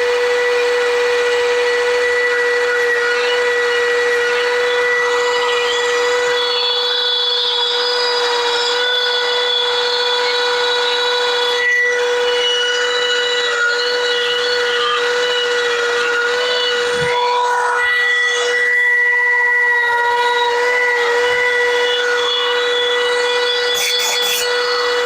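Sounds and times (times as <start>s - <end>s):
air rotary tool whining: 0.0s - 25.0s
bit grinding into wood: 21.6s - 25.0s.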